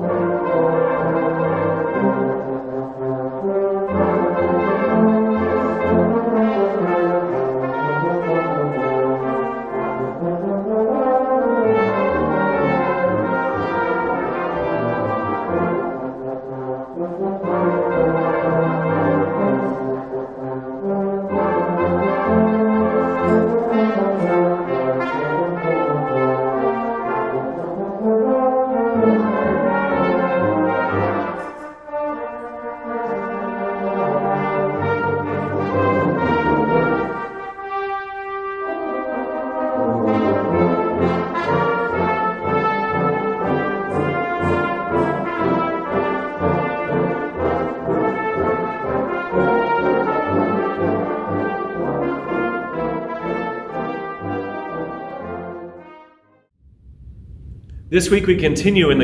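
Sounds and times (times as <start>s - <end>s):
brass band playing chords: 57.3s - 59.0s.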